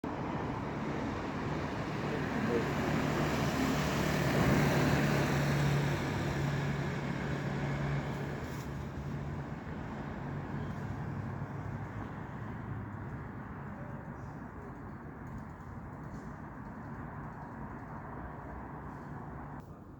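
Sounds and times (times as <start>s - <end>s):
vehicle passing by: 0.1s - 13.7s.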